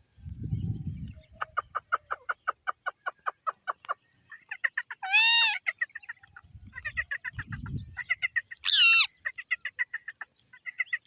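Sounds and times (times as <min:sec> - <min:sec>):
parrot chirping: 0:06.8 - 0:09.1.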